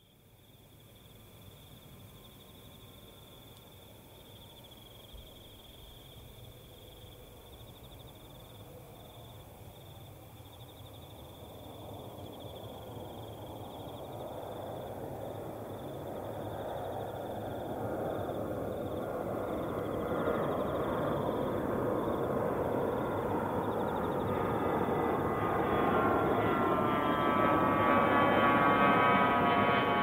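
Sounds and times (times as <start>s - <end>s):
insects chirring: 0.0s - 29.7s
jet airliner engine rumble: 10.9s - 30.0s.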